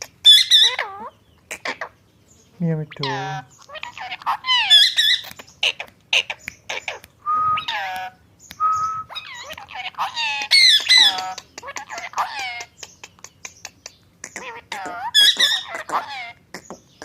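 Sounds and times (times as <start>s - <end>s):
parrot squawking and chirping: 0.0s - 17.0s
parrot steady whistles: 7.2s - 7.9s, 8.6s - 9.2s.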